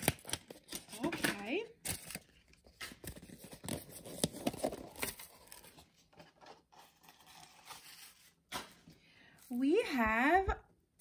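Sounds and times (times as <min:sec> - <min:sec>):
packaging rustling and tearing: 0:00.0 - 0:08.7.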